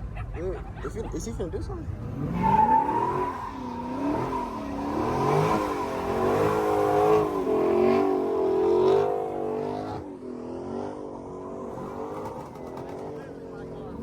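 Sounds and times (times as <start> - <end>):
car engine revving: 1.8 - 14.0.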